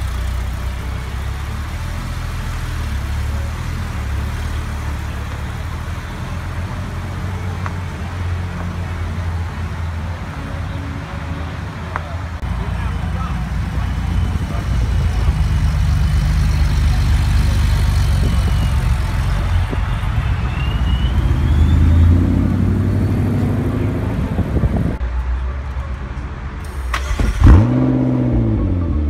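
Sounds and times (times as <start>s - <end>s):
car engine revving: 0.0s - 10.8s, 11.5s - 25.0s, 26.7s - 29.0s
car engines passing slowly: 0.0s - 29.0s.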